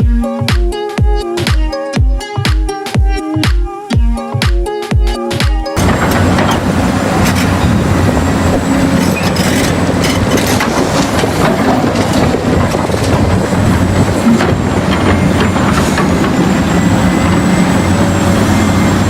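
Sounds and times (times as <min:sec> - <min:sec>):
dance music: 0:00.0 - 0:06.8.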